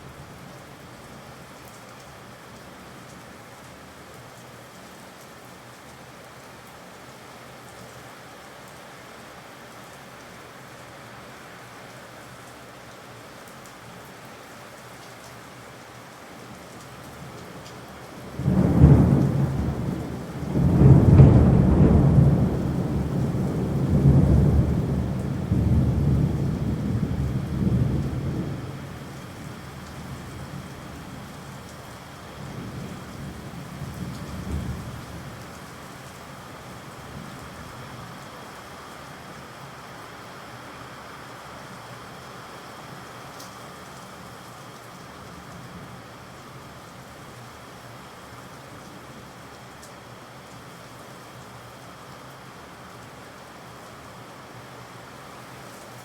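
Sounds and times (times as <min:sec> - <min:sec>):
steady rain: 0:00.0 - 0:56.0
thunder rumbling: 0:18.2 - 0:31.3, 0:32.4 - 0:35.4.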